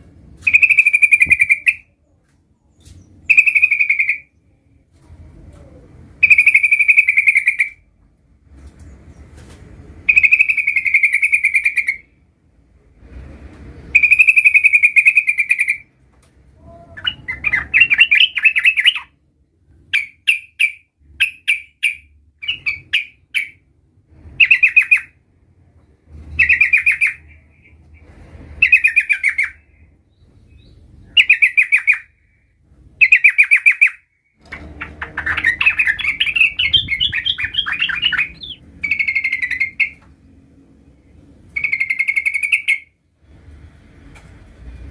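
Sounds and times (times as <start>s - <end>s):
bird singing trilled phrases: 2.7s - 4.4s, 6.2s - 7.8s, 10.1s - 12.1s, 13.9s - 15.9s, 16.7s - 19.1s, 19.9s - 23.6s, 24.4s - 25.2s, 26.4s - 27.8s, 28.6s - 32.1s, 33.0s - 34.0s, 34.6s - 40.0s, 41.6s - 42.9s.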